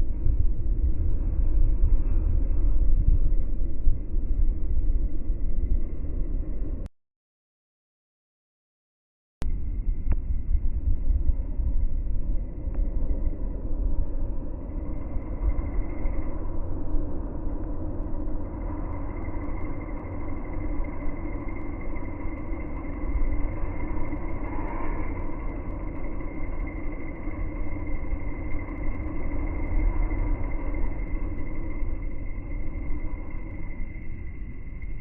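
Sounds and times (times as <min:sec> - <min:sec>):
faint steady whine: 0:00.0 - 0:06.9, 0:09.4 - 0:35.0
electric train rumbling: 0:09.5 - 0:35.0.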